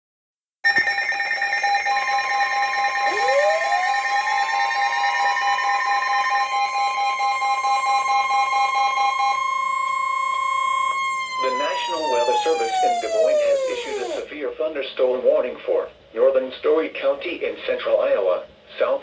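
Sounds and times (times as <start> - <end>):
electronic alarm tones: 0.7 - 14.3
rising warning alarm tone: 1.2 - 14.3
pulsing beeps: 3.0 - 14.3.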